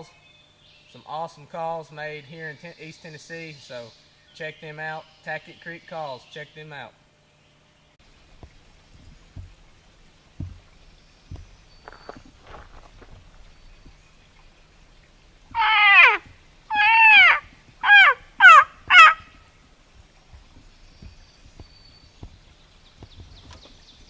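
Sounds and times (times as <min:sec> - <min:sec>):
loud calls sliding down in pitch: 0:15.6 - 0:19.2.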